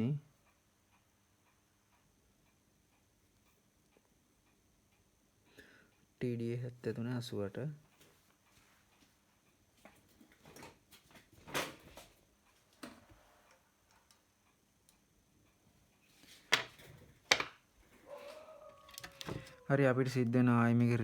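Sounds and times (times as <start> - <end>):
tools clicking and tapping: 16.2 - 17.6, 18.3 - 19.5.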